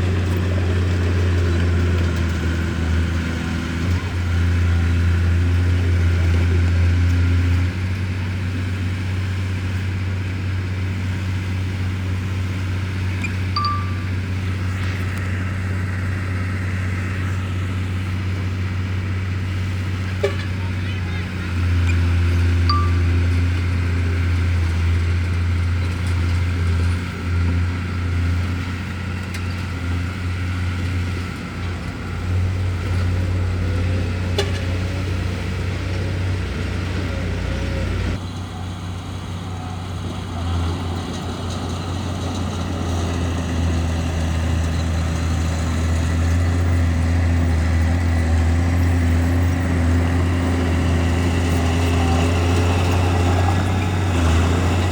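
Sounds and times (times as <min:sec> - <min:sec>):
bulldozer diesel engine drone: 0:00.0 - 0:54.9.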